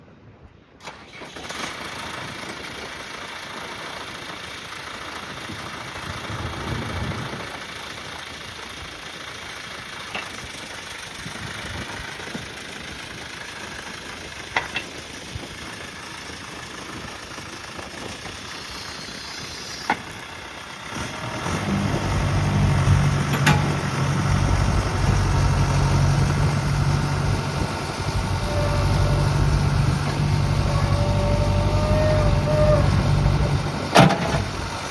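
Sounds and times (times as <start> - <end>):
diesel engine idling: 12.8 - 34.9.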